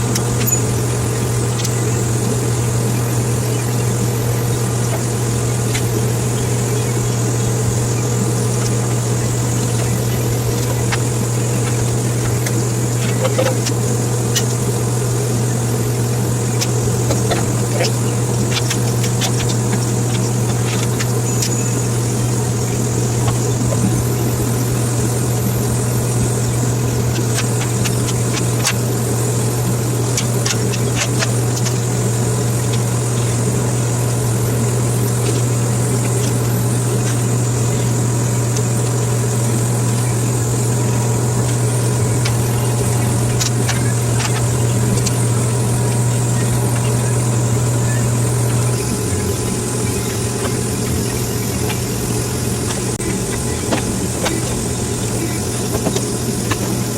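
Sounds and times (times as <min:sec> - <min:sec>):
sharp clicks and crackles: 0:00.0 - 0:02.4, 0:04.8 - 0:14.8, 0:15.4 - 0:24.0, 0:26.0 - 0:47.2
low mechanical hum: 0:00.0 - 0:56.9.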